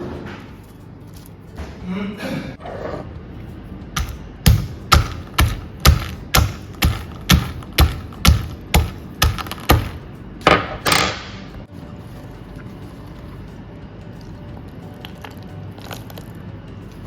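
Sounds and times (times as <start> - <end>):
knife chopping on cutting board: 4.0 - 10.0.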